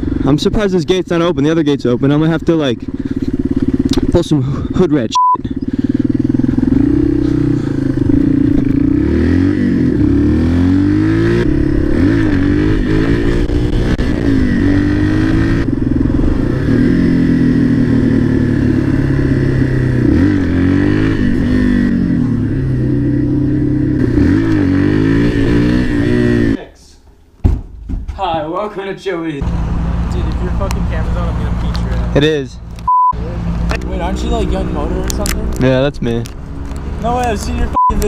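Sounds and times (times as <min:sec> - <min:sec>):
short beep: 0:05.1 - 0:05.4, 0:32.9 - 0:33.2, 0:37.8 - 0:38.0
dirt bike engine revving: 0:05.4 - 0:26.6.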